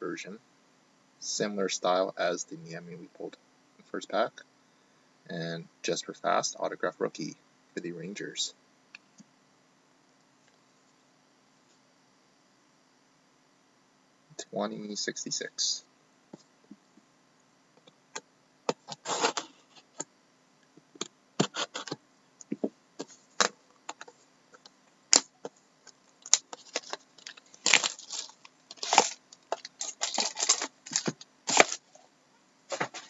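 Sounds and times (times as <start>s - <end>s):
packaging crinkling: 23.4s - 32.0s.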